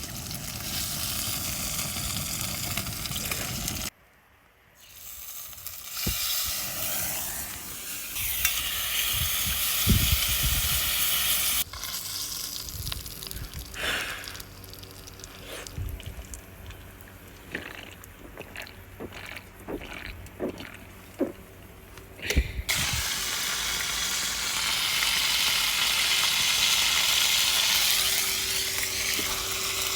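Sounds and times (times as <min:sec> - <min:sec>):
meat sizzling over campfire: 0:00.0 - 0:03.9, 0:04.8 - 0:17.2, 0:22.7 - 0:29.9.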